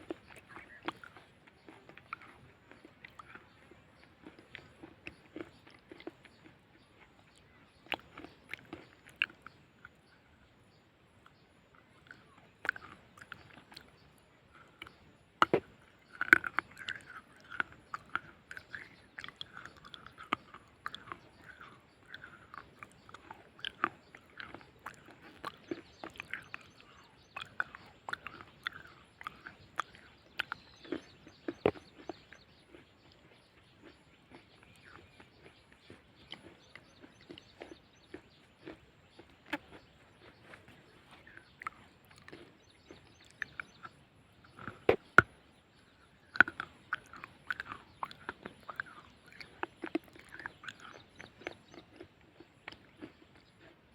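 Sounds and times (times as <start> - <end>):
person chewing crunchy earth: 0.0 - 53.9.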